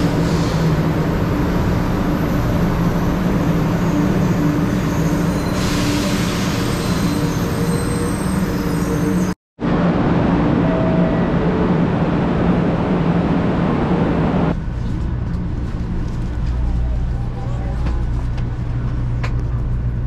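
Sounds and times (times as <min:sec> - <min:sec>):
train equipment mechanical hum: 0:09.7 - 0:20.0.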